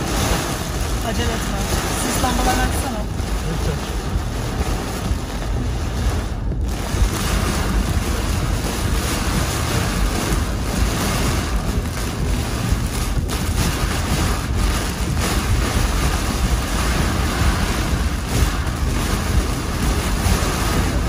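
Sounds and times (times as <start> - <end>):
heavy rain and wind on a car: 0.0 - 21.0.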